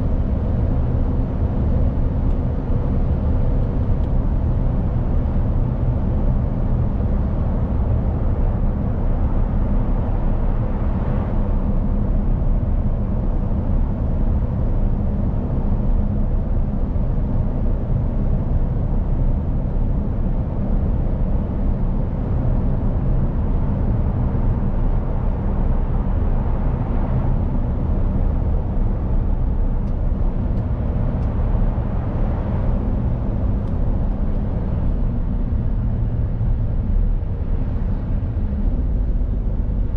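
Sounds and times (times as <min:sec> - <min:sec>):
road and tyre noise: 0:00.0 - 0:39.9
truck engine drone: 0:17.2 - 0:39.9.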